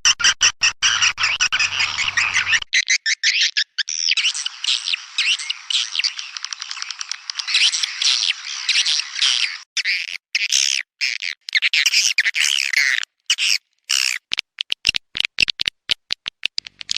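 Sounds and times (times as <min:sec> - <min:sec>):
swiftlet twittering chirps: 0:00.9 - 0:02.7, 0:03.8 - 0:09.6.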